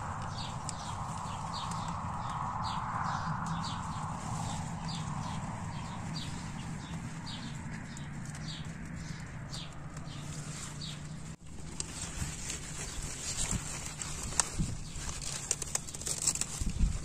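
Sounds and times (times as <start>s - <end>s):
small bird chirping: 0.0s - 11.4s
steady low hum: 0.0s - 14.6s
leaves rustling: 0.0s - 17.0s.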